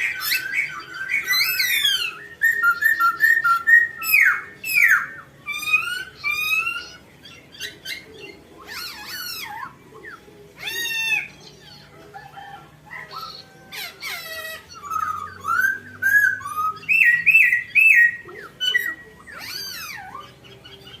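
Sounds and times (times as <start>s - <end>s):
songbird singing: 0.0s - 21.0s.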